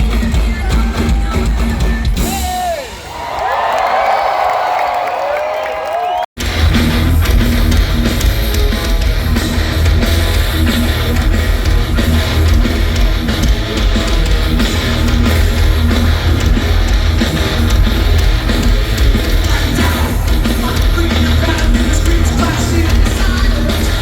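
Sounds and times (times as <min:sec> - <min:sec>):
bass guitar: 0:00.0 - 0:02.4, 0:06.4 - 0:24.0
steady drum beat: 0:00.0 - 0:03.1, 0:06.4 - 0:24.0
heavy electric guitar: 0:06.4 - 0:24.0.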